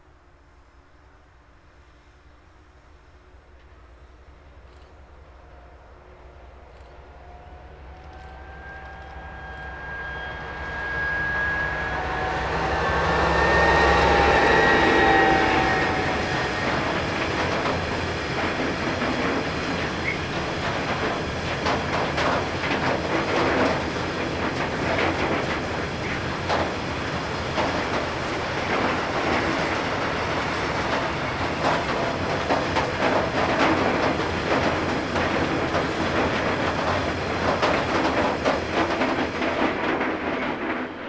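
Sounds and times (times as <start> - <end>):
diesel locomotive engine drone: 0.0 - 41.0
train wheels clacking over rail joints: 12.2 - 41.0.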